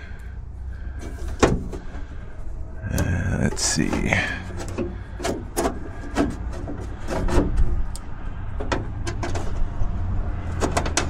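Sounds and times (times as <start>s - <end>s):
metal hardware clicking and knocking: 10.5s - 11.0s.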